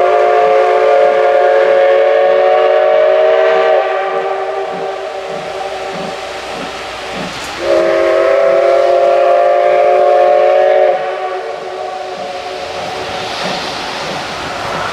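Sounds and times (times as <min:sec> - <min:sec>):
steam locomotive whistle chord: 0:00.0 - 0:05.9, 0:07.6 - 0:12.7.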